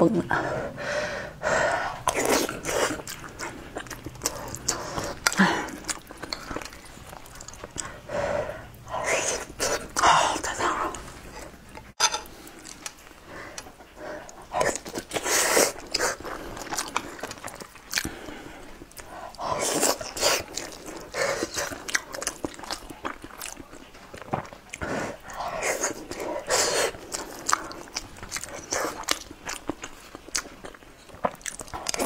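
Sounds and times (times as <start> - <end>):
chewing and wet mouth smacking: 2.0 - 8.0, 12.5 - 32.0.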